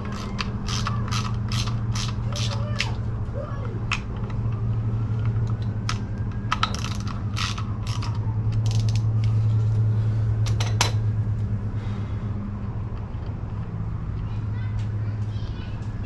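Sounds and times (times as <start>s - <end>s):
socket ratchet clicking: 0.0s - 2.9s, 5.5s - 9.1s
steady low hum: 0.0s - 16.0s.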